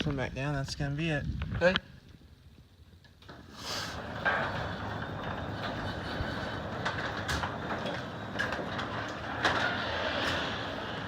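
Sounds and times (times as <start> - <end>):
roller clicks and clunks: 3.0 - 11.0
garage door rumbling down: 3.3 - 11.0.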